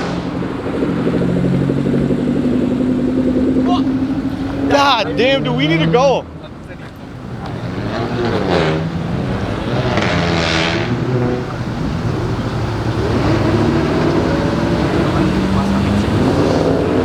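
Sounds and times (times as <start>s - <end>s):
rushing swell: 0.0s - 5.8s, 7.0s - 17.0s
car engines accelerating: 0.0s - 17.0s.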